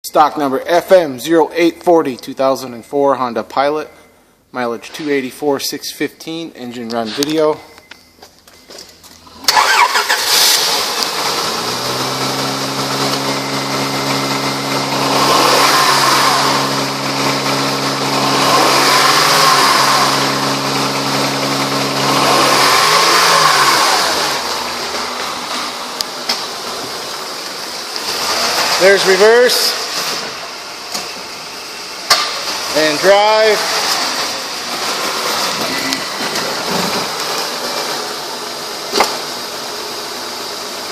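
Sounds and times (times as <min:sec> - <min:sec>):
car engine running: 0:09.2 - 0:29.2
car engine cranking and starting: 0:09.2 - 0:40.9.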